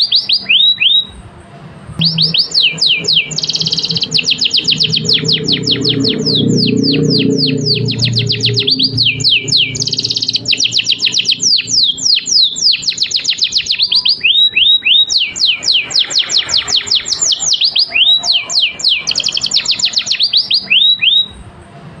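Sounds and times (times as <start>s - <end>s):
canary singing trills: 0.0s - 1.2s, 2.0s - 21.4s.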